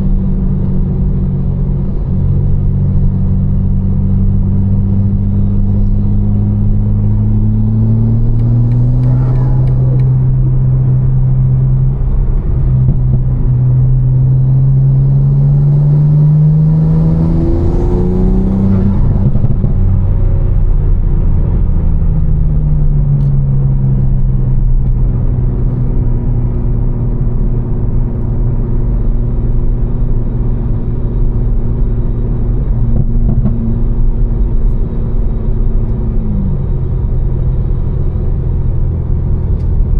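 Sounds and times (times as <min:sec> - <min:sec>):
car engine droning: 0:00.0 - 0:39.9
wet tyre road noise: 0:00.0 - 0:39.9.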